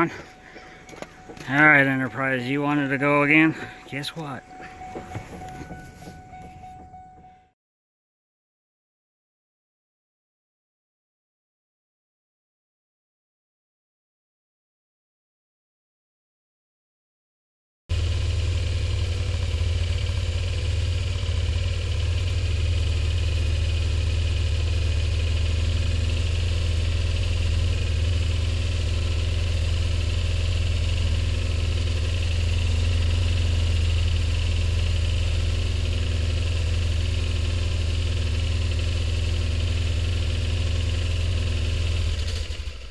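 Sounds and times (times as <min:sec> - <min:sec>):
car engine idling: 0:00.0 - 0:07.5, 0:17.9 - 0:42.9.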